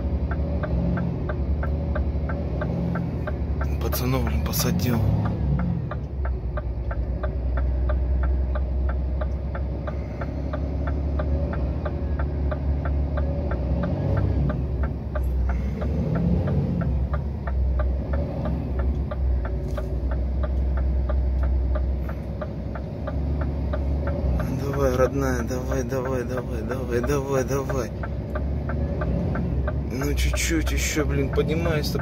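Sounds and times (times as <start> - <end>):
diesel engine running: 0.0 - 32.0
steady clicking: 0.0 - 32.0.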